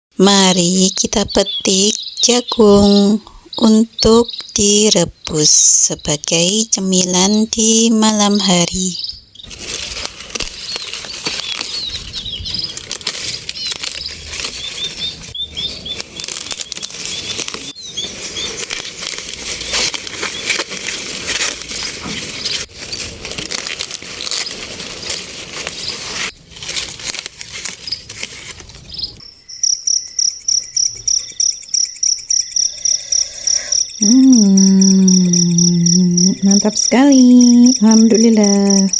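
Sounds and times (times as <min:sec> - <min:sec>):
insect chirping: 0:00.2 - 0:09.6, 0:27.6 - 0:38.9
dry corn leaves rustling: 0:07.0 - 0:29.3.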